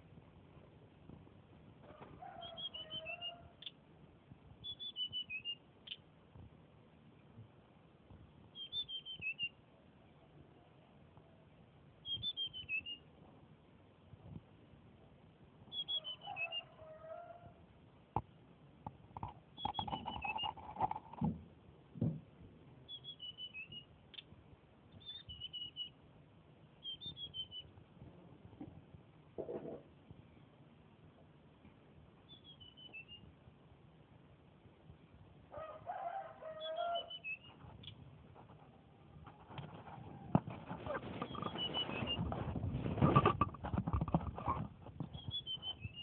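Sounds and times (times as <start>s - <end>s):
songbird high chirps: 2.4s - 3.8s, 4.6s - 6.0s, 8.5s - 9.6s, 12.0s - 13.1s, 15.7s - 16.8s, 19.6s - 20.7s, 22.9s - 24.3s, 24.9s - 26.0s, 26.8s - 27.8s, 32.2s - 33.3s, 36.4s - 38.0s, 41.2s - 42.3s, 45.0s - 46.0s.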